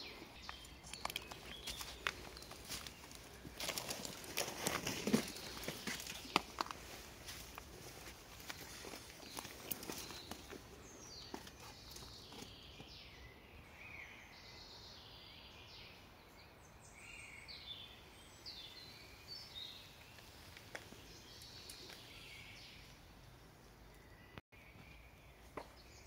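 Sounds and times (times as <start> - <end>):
small birds chirping and trilling: 0.0 - 26.0.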